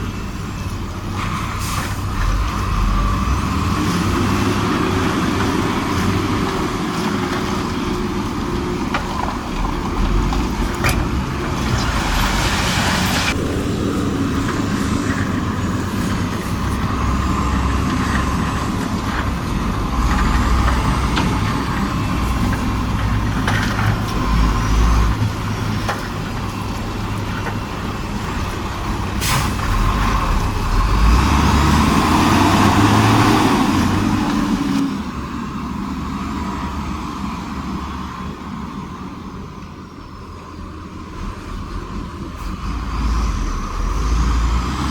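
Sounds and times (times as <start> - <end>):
heavy diesel engines rumbling: 0.0 - 44.9.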